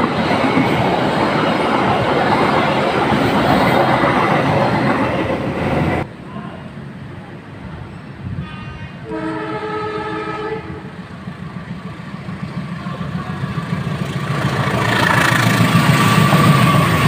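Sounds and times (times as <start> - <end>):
rumble of passing train: 0.0 - 17.0
train horn blowing a chord: 8.3 - 10.9.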